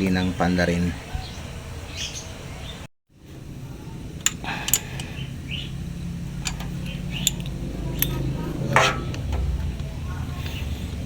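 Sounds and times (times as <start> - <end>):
birds chirping: 0.0 - 11.0
steady low background hum: 0.0 - 11.0
metallic clicks of tools: 6.4 - 9.4.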